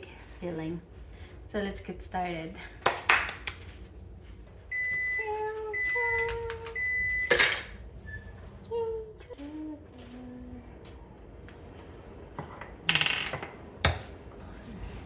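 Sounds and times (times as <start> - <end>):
microwave oven beeping: 4.6 - 11.0.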